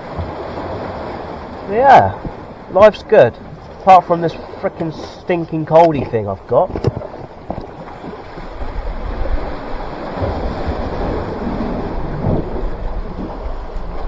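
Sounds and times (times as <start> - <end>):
sea surf against rocks: 0.0 - 14.0
wind buffeting the microphone: 3.1 - 14.0.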